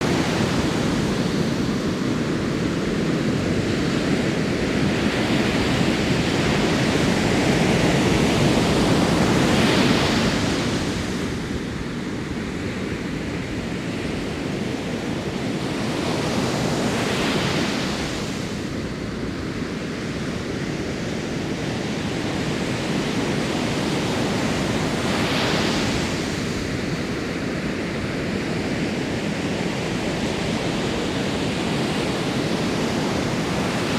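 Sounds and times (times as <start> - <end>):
ocean surf rushing: 0.0 - 11.3, 22.3 - 33.9.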